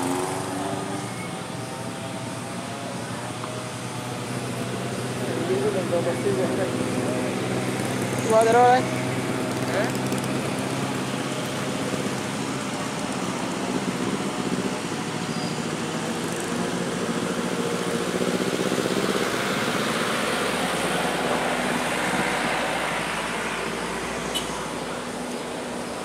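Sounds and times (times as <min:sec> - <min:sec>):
road traffic noise: 0:00.0 - 0:26.0
vehicle engine running: 0:01.7 - 0:15.2.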